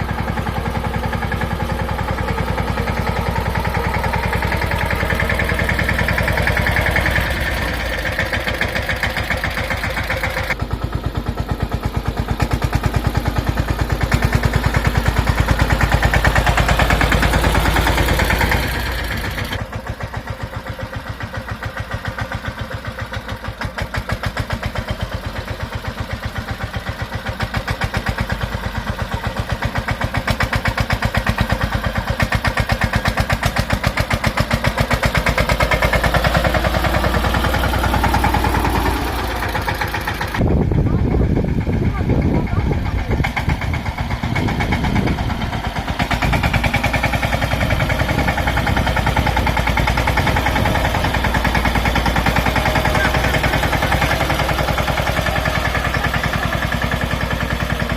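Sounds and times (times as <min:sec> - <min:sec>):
tractor diesel engine chugging: 0:00.0 - 0:57.9.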